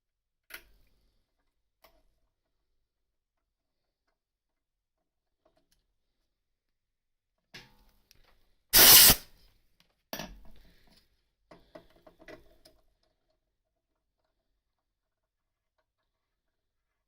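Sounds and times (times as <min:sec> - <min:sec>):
air blow gun blast: 0:08.8 - 0:09.2.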